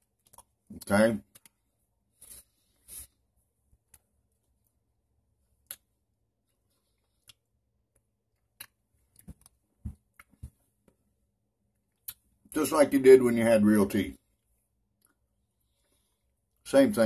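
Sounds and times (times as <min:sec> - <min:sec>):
chewing with dentures clicking: 0:00.0 - 0:01.6, 0:06.9 - 0:10.4.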